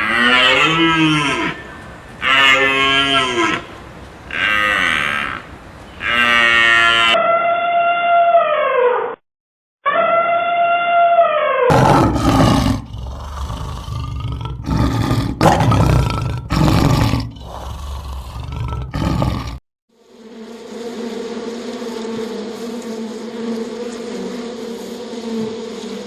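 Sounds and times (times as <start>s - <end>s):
large animal roaring: 0.0s - 7.2s, 11.7s - 19.6s
steady buzzing: 0.0s - 7.2s
high drawn-out animal call: 0.0s - 9.1s, 9.9s - 12.7s.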